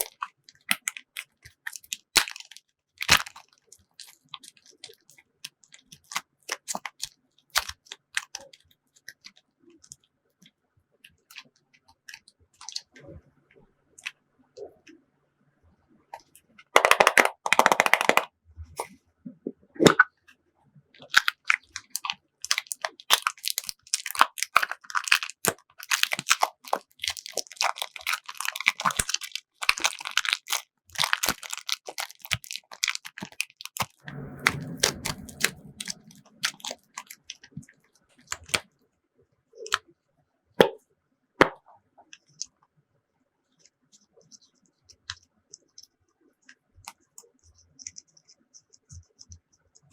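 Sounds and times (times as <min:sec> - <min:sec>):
slime crackling and popping: 0:21.0 - 0:37.6.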